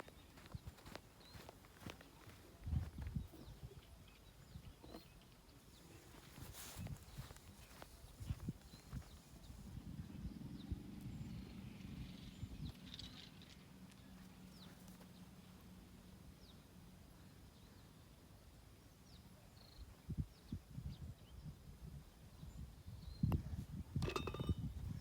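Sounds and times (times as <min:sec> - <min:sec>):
faint outdoor ambience: 0:00.0 - 0:25.0.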